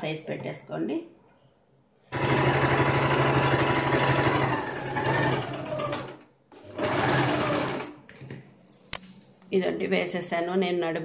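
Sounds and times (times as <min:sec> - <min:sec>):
electric sewing machine running: 0:02.1 - 0:08.0.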